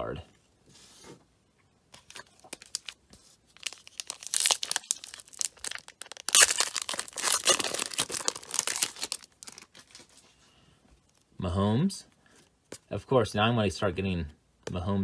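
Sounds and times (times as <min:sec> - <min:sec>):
plastic wrapper tearing and crinkling: 0:02.0 - 0:10.2.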